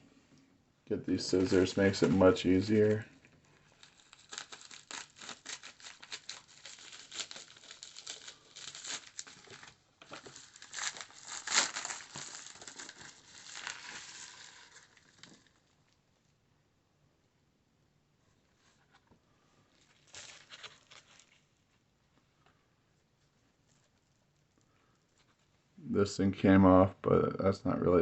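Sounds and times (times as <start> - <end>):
wrapping crinkling and tearing: 1.1 - 15.8, 19.6 - 21.9.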